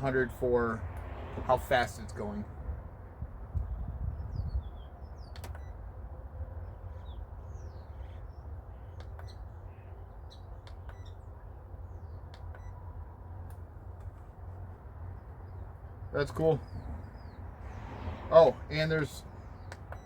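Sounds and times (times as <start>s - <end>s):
small birds chirping: 3.6s - 5.8s, 6.6s - 20.0s
sharp clicks: 5.2s - 5.8s, 9.0s - 9.4s, 10.6s - 11.2s, 12.2s - 12.8s, 19.6s - 20.0s.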